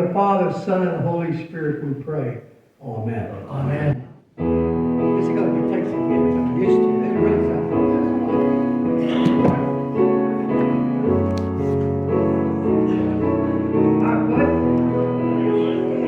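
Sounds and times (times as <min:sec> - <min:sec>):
slow keyboard chords: 0:04.0 - 0:16.0.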